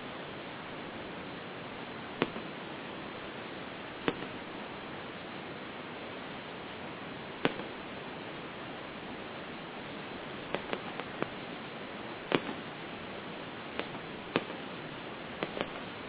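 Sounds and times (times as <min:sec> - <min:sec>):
steady hiss: 0:00.0 - 0:16.0
sharp firework bangs: 0:02.2 - 0:02.6, 0:04.0 - 0:04.4, 0:07.4 - 0:07.8, 0:10.4 - 0:11.4, 0:12.3 - 0:12.7, 0:13.7 - 0:14.7, 0:15.4 - 0:15.9.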